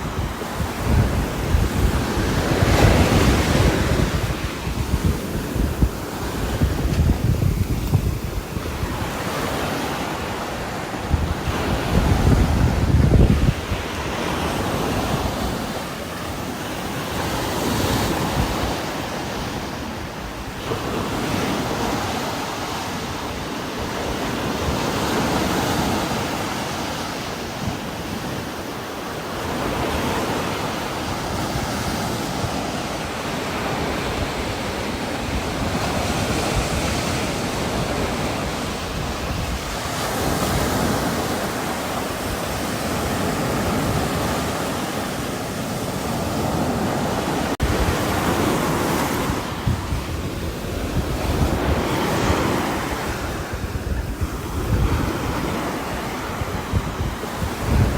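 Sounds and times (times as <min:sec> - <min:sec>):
gusting wind: 0:00.0 - 0:57.9.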